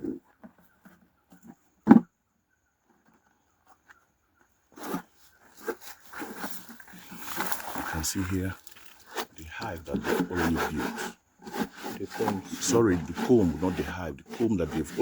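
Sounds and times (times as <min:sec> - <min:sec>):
wood rubbing and scraping: 0:04.7 - 0:15.0.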